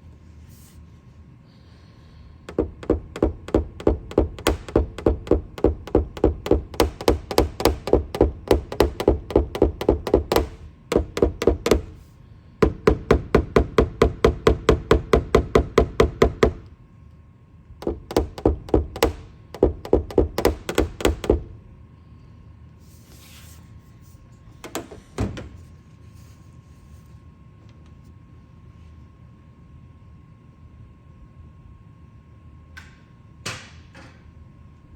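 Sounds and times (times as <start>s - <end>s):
knocks on metal: 2.5s - 12.0s, 12.6s - 16.6s, 17.8s - 21.5s
rapid taps on metal car roof: 2.5s - 12.0s, 12.6s - 16.7s, 17.8s - 21.5s.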